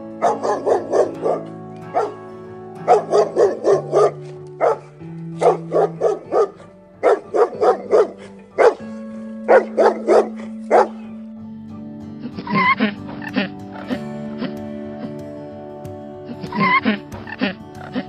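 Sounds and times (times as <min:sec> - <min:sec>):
background music: 0:00.0 - 0:18.0
dog barking: 0:00.2 - 0:02.2, 0:02.8 - 0:11.2.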